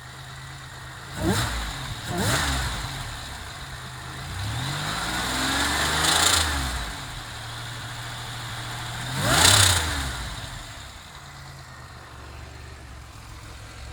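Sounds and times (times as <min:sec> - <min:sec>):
car engine revving from idle: 0:00.0 - 0:13.9.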